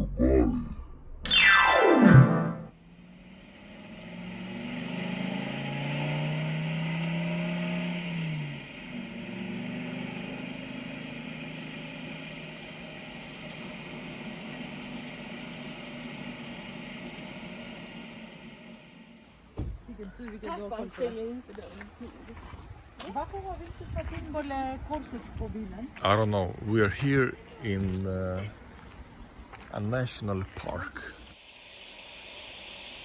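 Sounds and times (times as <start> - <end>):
road noise: 2.8 - 31.4
car engine running: 6.5 - 19.5.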